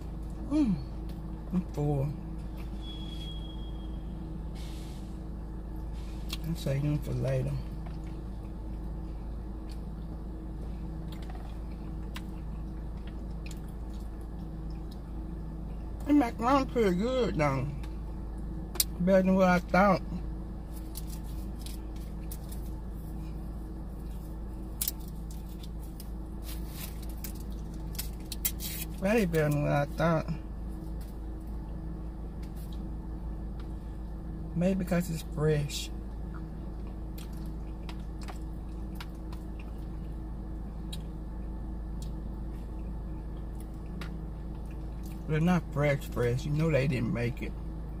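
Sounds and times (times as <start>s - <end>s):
steady low hum: 0.0s - 48.0s
person chewing food: 7.6s - 15.2s, 36.2s - 40.2s, 41.9s - 45.3s
chewing: 11.0s - 15.1s.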